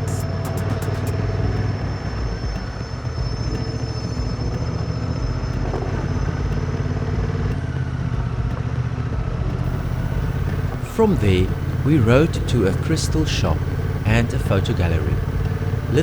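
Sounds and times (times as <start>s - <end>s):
motorcycle engine humming: 9.6s - 16.0s.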